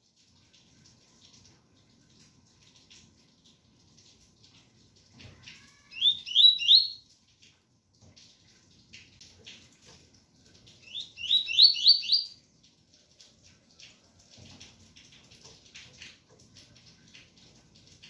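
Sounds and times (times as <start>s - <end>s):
rain pattering: 0.0s - 18.0s
bird singing rising notes: 6.0s - 7.0s, 10.9s - 12.4s.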